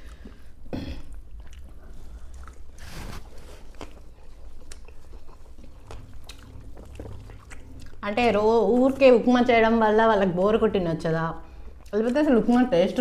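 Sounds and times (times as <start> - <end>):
chewing and wet squishing: 0.0 - 13.0.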